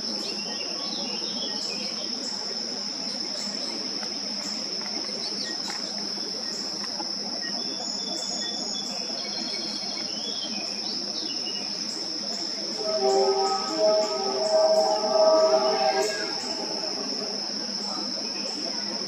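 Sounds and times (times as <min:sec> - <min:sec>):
high-pitched insect trill: 0:12.4 - 0:19.0.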